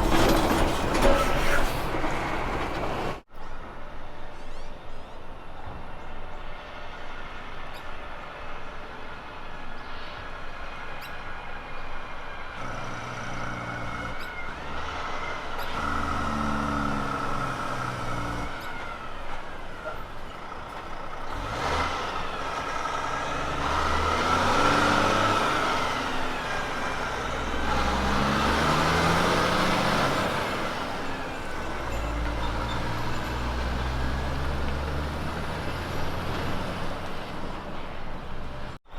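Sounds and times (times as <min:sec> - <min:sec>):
diesel truck engine shifting gears: 0:00.0 - 0:03.3, 0:12.3 - 0:38.8.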